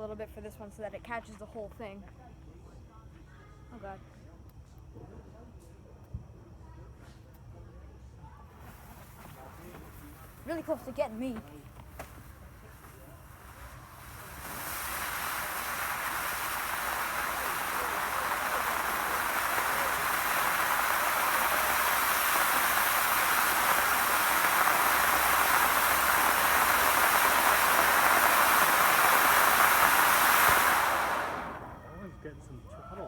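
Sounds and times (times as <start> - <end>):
firework fountain hissing: 8.5 - 32.0.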